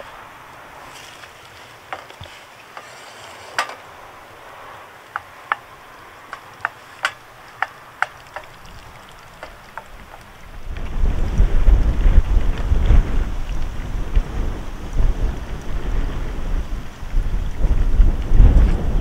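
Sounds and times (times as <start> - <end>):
faint steady hiss: 0.0 - 19.0
sharp clicks and knocks: 1.9 - 3.9, 6.3 - 10.3.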